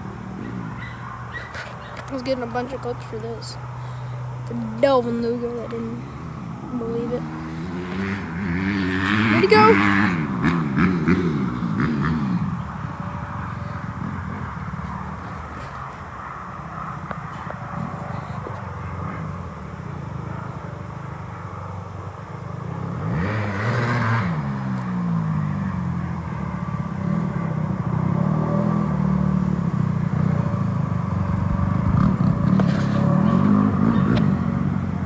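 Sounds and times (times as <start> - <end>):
dirt bike engine revving: 6.0 - 20.5, 22.7 - 35.0.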